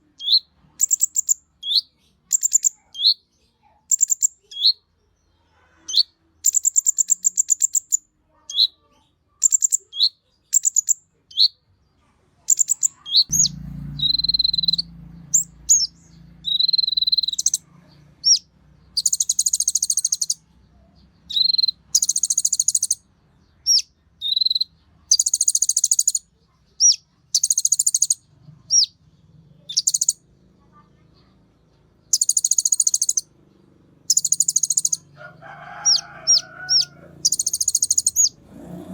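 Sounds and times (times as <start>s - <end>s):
bird singing buzzy trills: 0.0s - 3.2s, 12.5s - 20.4s, 21.1s - 23.0s, 23.6s - 31.3s, 31.9s - 38.4s
faint low hum: 11.7s - 22.2s.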